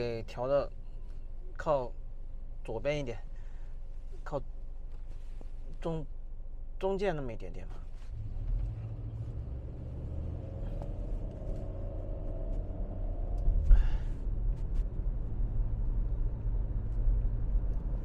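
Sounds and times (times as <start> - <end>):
car cabin road rumble: 7.4 - 18.0.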